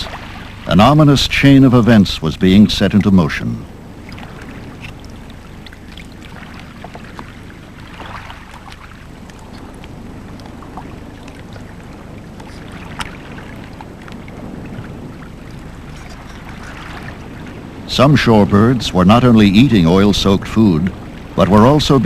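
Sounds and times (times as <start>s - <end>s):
water lapping at shoreline: 0.0s - 22.0s
small splashes and clicks: 4.0s - 14.3s.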